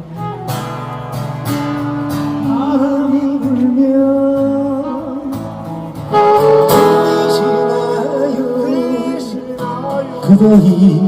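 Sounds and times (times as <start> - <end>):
person singing with vibrato: 2.3 - 11.0
instrumental accompaniment: 4.8 - 10.2.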